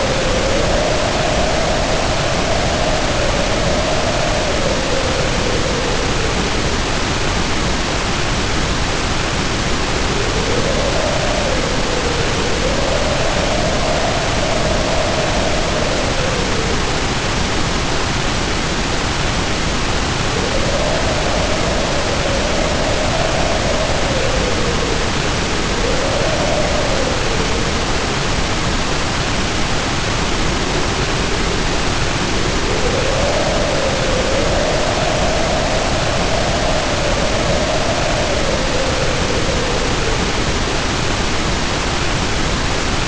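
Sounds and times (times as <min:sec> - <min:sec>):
heavy rain pouring: 0:00.0 - 0:43.0
wind howling in gusts: 0:00.0 - 0:43.0.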